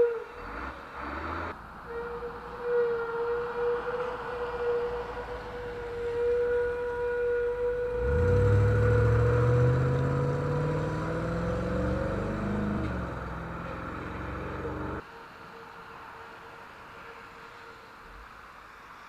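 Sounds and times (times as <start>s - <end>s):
vehicle engine accelerating: 0.4s - 1.7s, 7.8s - 15.0s
high squeal: 1.8s - 15.0s.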